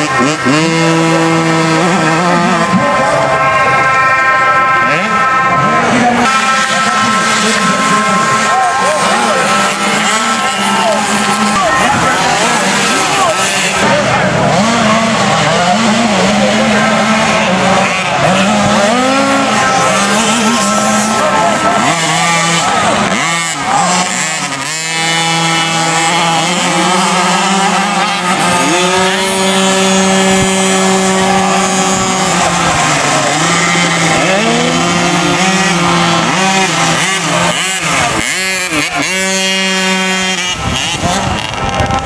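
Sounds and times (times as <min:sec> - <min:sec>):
motocross bikes revving: 0:00.0 - 0:42.0.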